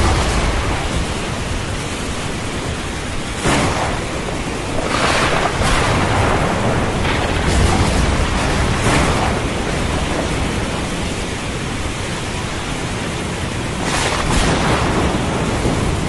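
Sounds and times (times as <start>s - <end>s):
ocean surf: 0.0s - 16.0s
rain hiss: 0.0s - 16.0s.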